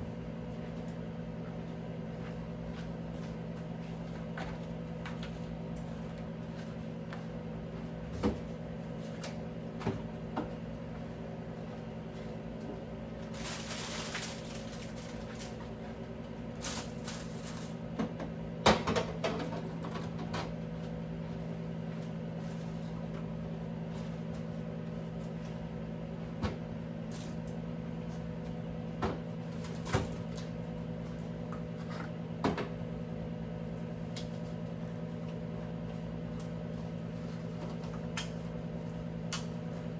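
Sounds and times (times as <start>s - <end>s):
steady hum: 0.0s - 39.9s
objects knocking and clunking: 18.0s - 20.5s.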